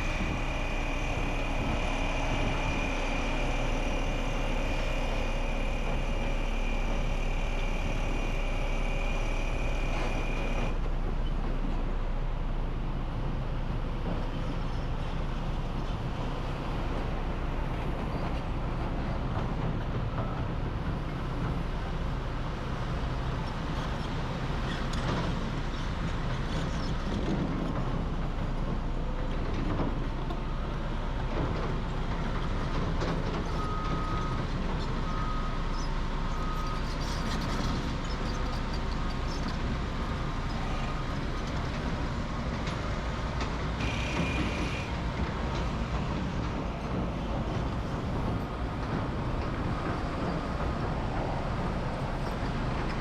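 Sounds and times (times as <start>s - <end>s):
hiss with high squeal: 0.0s - 10.8s, 33.6s - 39.6s, 43.8s - 45.0s
diesel engine drone: 0.0s - 53.0s.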